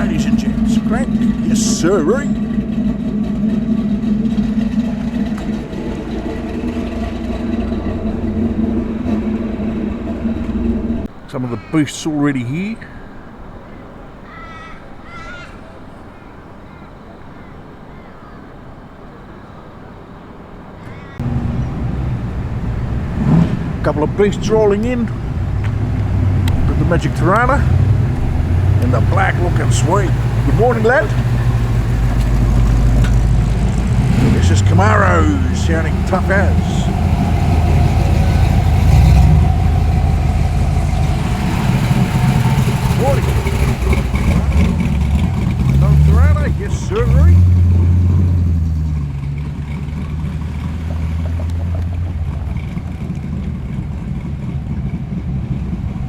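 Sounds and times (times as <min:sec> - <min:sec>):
car engine rumbling: 0:00.0 - 0:14.2, 0:19.6 - 0:56.0
outdoor background noise: 0:00.0 - 0:56.0
crow cawing: 0:12.9 - 0:18.9, 0:20.8 - 0:21.2.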